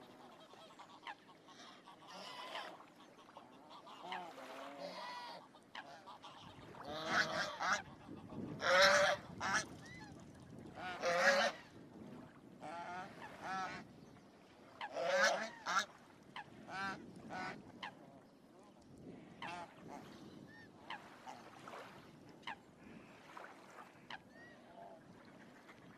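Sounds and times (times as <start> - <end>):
ducks calling: 5.8 - 9.6.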